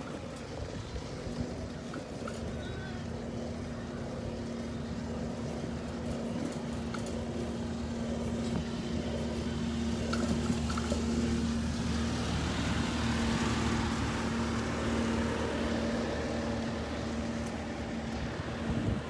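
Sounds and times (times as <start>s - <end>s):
bicycle tyres rolling on pavement: 0.0s - 19.0s
wind on microphone: 17.6s - 19.0s.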